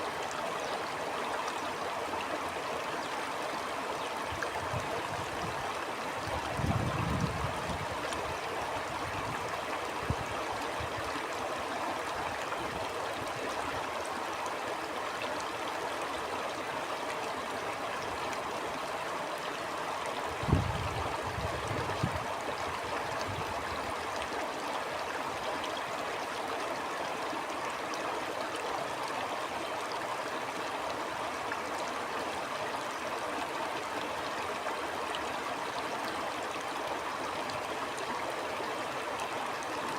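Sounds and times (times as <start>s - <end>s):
stream flowing: 0.0s - 39.9s
wind rumble on microphone: 6.3s - 11.0s, 20.4s - 22.3s, 23.0s - 23.7s.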